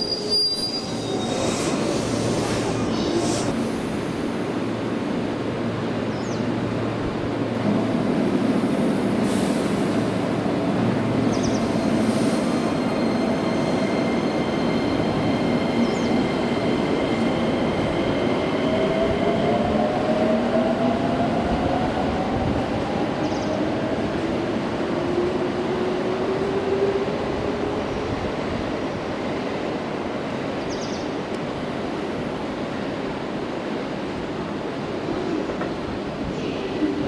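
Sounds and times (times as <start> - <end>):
train motor whine rising: 0.0 - 4.2.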